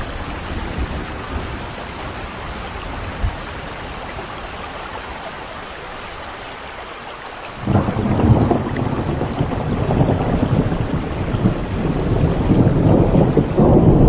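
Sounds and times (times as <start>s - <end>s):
steady rain: 0.0s - 14.0s
thunder rumbling: 7.6s - 14.0s.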